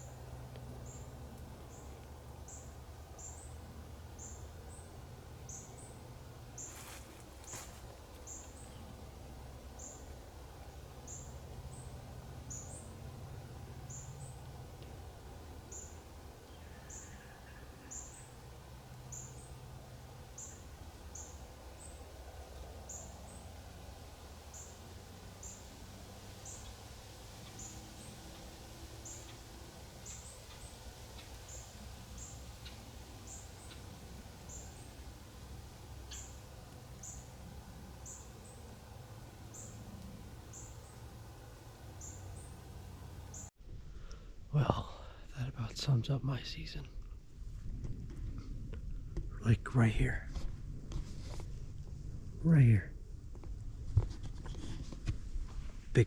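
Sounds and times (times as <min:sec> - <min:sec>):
steady low rumble: 0:00.0 - 0:54.1
small bird chirping: 0:20.3 - 0:22.1, 0:27.4 - 0:28.4, 0:29.0 - 0:29.4, 0:30.0 - 0:35.0, 0:35.9 - 0:37.4, 0:38.0 - 0:38.7, 0:39.5 - 0:39.9, 0:40.5 - 0:41.1, 0:41.9 - 0:42.6, 0:43.2 - 0:43.5.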